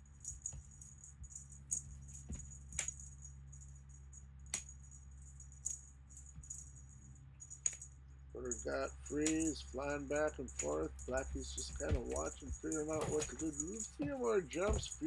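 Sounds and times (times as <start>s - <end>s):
low hum: 0.0s - 15.0s
small bell jingling: 0.0s - 15.0s.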